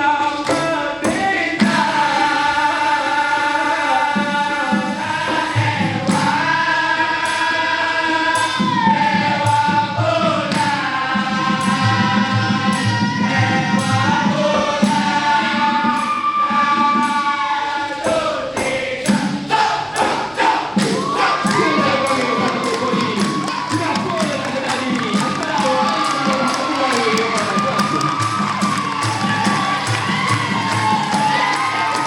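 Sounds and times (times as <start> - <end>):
percussion beat: 0.0 - 32.0
vocal group singing in harmony: 0.0 - 32.0
audience cheering: 20.4 - 32.0.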